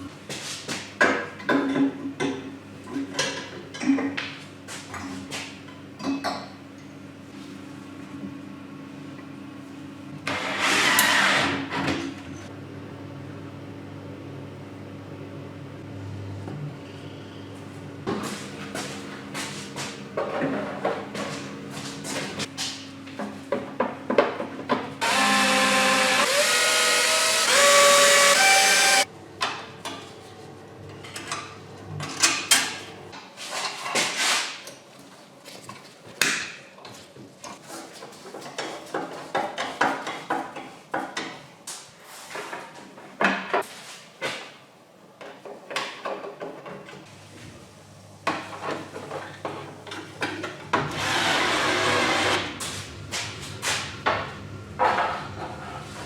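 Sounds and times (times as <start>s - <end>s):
power tool whining: 25.0s - 29.1s, 50.9s - 52.5s.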